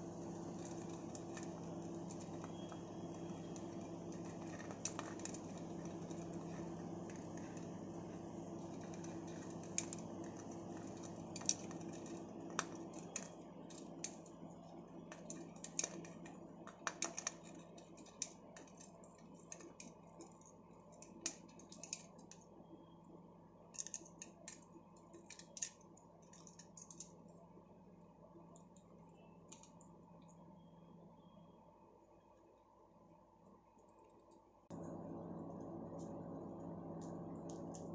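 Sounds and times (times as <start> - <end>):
steady low hum: 0.0 - 25.2, 25.8 - 37.9
parrots clicking and tapping: 0.4 - 14.2, 15.1 - 22.5, 23.7 - 27.1.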